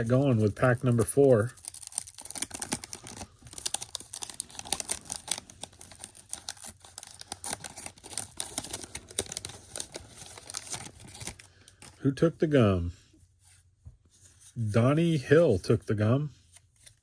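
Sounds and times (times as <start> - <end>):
wax paper wrapper tearing and crinkling: 0.0 - 12.0.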